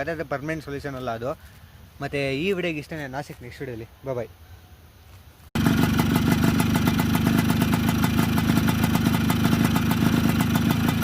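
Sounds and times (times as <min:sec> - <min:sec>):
two-stroke engine idling: 0:05.6 - 0:11.0.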